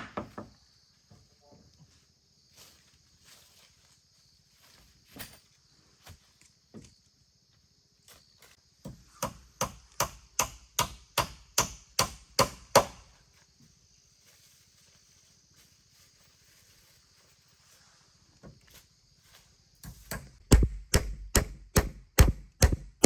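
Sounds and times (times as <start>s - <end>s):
tool striking wood: 8.8s - 13.0s, 19.8s - 23.0s.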